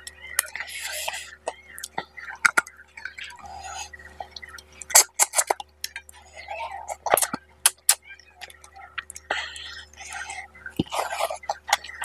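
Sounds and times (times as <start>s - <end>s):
close chewing: 0.0s - 12.0s
wet mouth clicks and lip smacks: 4.6s - 6.1s.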